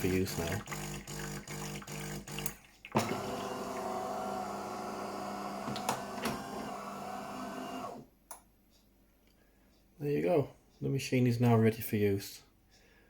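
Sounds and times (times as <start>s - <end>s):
coffee machine pump buzzing: 0.0s - 8.0s.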